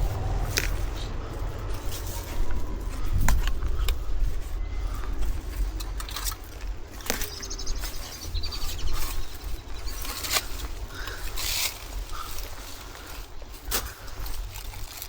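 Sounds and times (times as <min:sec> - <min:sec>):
wind rumbling on microphone: 0:00.0 - 0:15.0
small bird trilling: 0:07.0 - 0:11.0.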